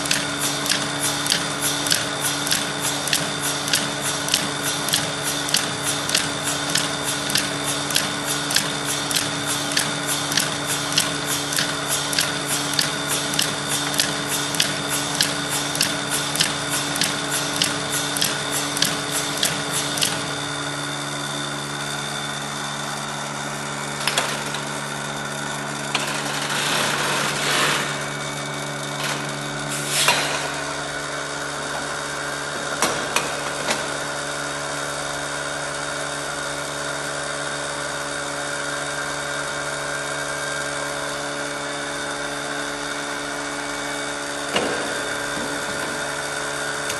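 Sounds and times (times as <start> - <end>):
even machine clicking: 0.0 - 20.5.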